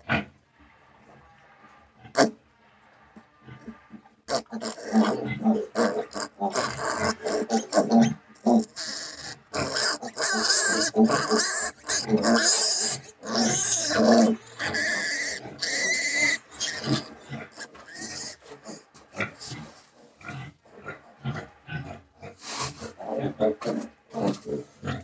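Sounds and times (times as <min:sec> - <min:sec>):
piglets squealing: 0:04.3 - 0:18.8
piglets grunting: 0:04.3 - 0:25.0.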